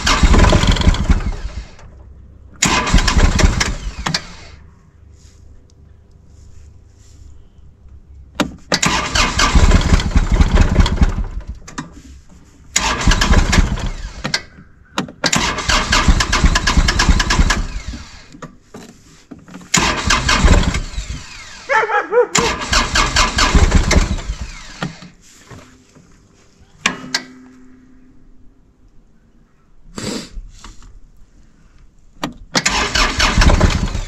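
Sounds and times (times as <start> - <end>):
diesel engine cranking on starter: 0.0 - 4.7, 8.4 - 12.0, 12.7 - 18.6, 19.6 - 21.7, 22.4 - 25.2, 32.3 - 34.0.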